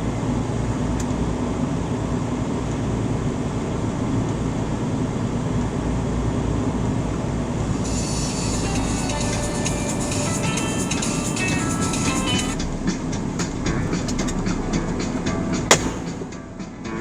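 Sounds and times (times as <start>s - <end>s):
road and engine drone: 0.0s - 17.0s.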